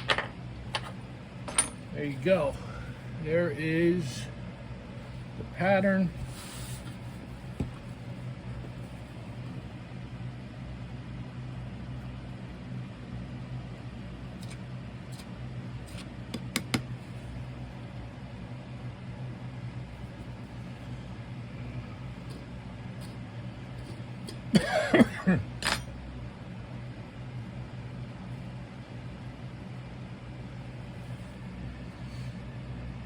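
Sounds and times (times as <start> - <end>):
low mechanical hum: 0.0 - 33.0
cough-like sound: 24.5 - 25.4.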